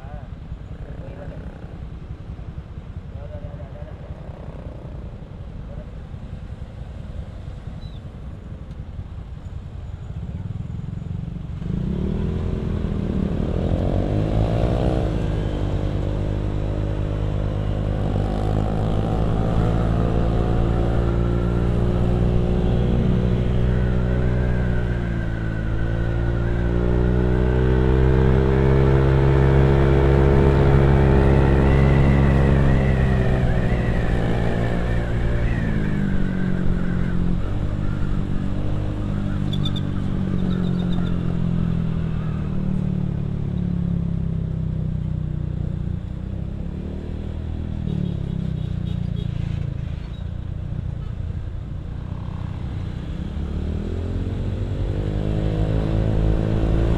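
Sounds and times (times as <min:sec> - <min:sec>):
motorcycle engine rumbling: 0:09.0 - 0:56.9.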